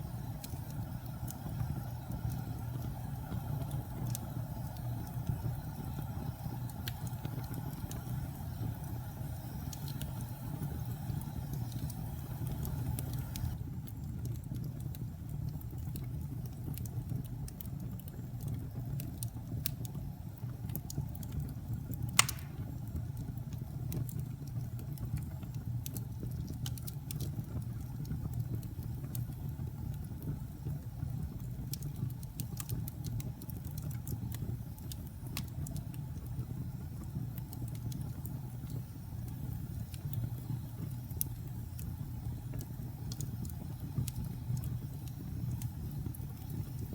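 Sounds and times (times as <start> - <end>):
fire burning in fireplace: 0.0 - 46.9
fire crackles: 0.0 - 46.9
sharp loud pop: 22.2 - 22.6.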